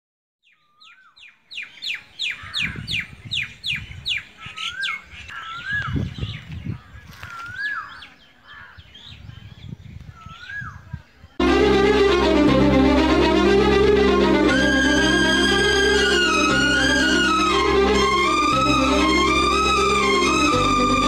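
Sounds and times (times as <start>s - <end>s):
sharp downward-sweeping bird notes: 11.4s - 21.0s.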